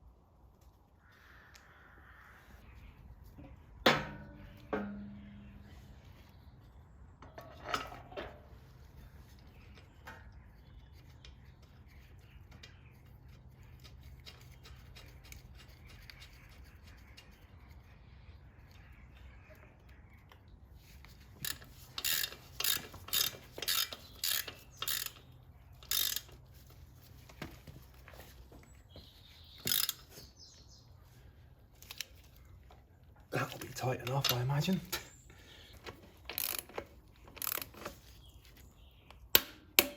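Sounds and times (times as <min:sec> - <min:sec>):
ratchet wrench strokes: 0:21.4 - 0:26.4, 0:29.7 - 0:30.1, 0:36.4 - 0:36.7.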